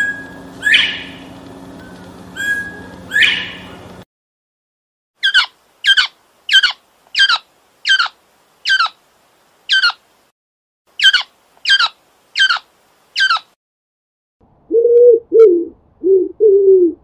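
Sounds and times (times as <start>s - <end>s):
bird harsh calls: 0.0s - 1.3s, 1.9s - 3.9s, 5.2s - 9.0s, 9.7s - 10.0s, 11.0s - 13.6s.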